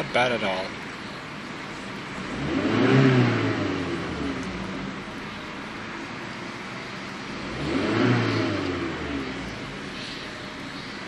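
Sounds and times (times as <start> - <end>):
car engine revving and idling: 0.0 - 11.0.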